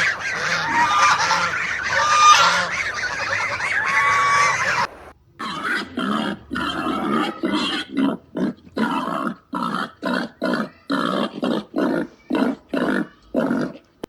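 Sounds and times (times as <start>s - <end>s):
animal grunting hoarsely: 5.4s - 13.8s.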